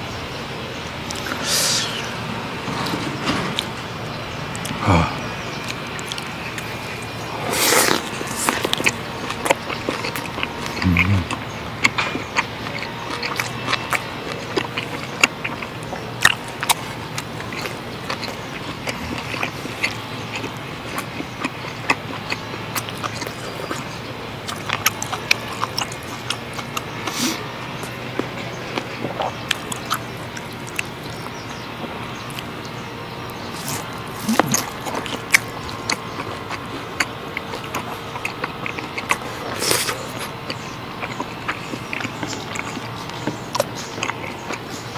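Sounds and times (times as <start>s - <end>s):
wet chewing mouth sounds: 1.0s - 3.8s, 4.4s - 44.9s.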